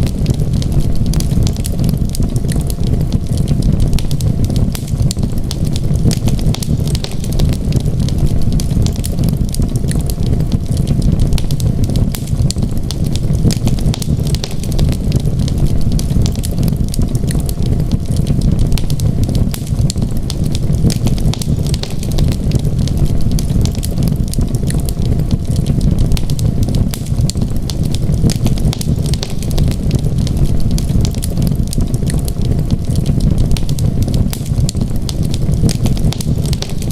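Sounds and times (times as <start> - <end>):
storm wind rumbling: 0.0 - 36.9
wood fire crackling: 0.0 - 36.9.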